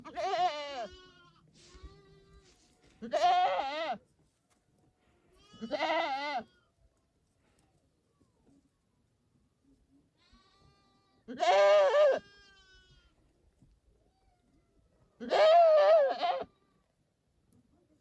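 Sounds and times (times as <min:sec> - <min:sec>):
goat bleating: 0:00.0 - 0:04.0, 0:05.3 - 0:06.7, 0:10.2 - 0:13.3, 0:15.2 - 0:16.8.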